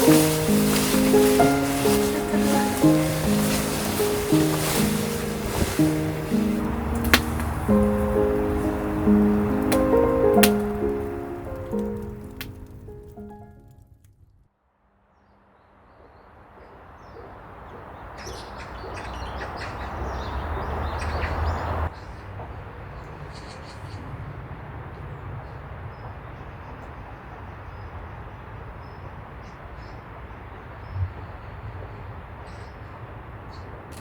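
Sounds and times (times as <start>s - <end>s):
small birds chirping: 0.0s - 12.2s, 17.0s - 22.2s
steady hiss: 0.0s - 12.3s
wind rumbling on microphone: 0.0s - 13.2s.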